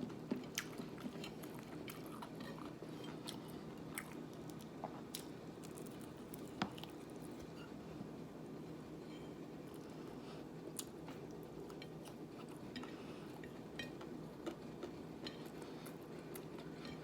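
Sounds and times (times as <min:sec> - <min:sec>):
person chewing food: 0:00.3 - 0:07.5, 0:10.7 - 0:17.0.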